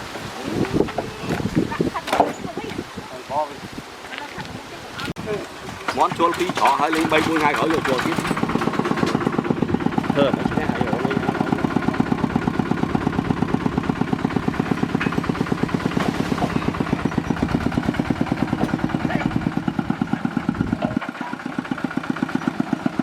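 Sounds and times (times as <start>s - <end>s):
engine idling: 5.8s - 23.0s.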